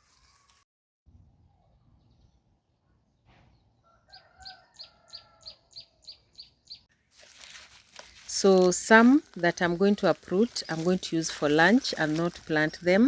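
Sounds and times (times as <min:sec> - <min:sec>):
faint rooster crowing: 0:03.8 - 0:06.3
small bird chirping rapidly: 0:04.4 - 0:06.9.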